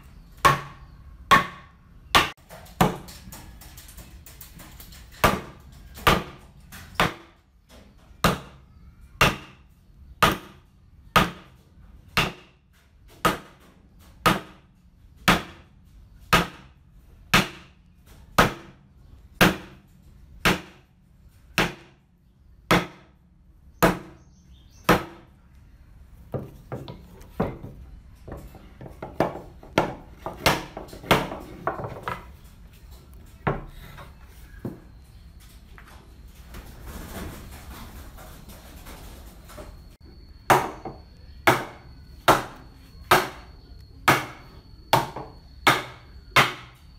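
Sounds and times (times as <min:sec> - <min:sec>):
hammer striking wood: 0:00.4 - 0:03.0, 0:09.2 - 0:09.6, 0:10.2 - 0:10.6, 0:11.2 - 0:11.5, 0:12.2 - 0:12.6, 0:14.2 - 0:14.6, 0:15.3 - 0:15.6, 0:16.3 - 0:16.7, 0:18.4 - 0:18.8, 0:22.7 - 0:23.1, 0:40.5 - 0:43.4, 0:44.1 - 0:46.8.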